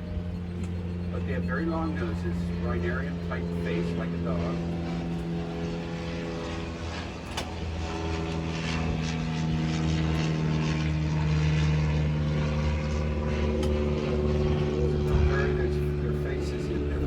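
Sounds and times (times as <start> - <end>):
boat motor droning: 0.0 - 17.0.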